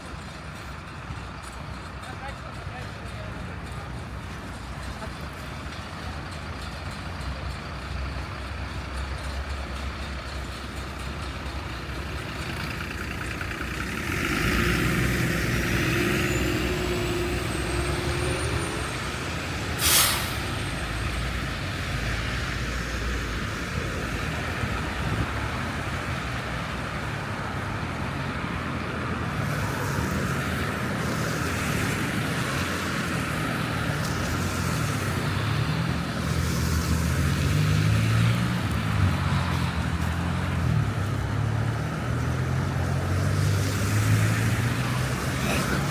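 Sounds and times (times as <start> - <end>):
rumble of passing vehicles: 0.0 - 45.9
brief sharp hiss: 19.8 - 20.6.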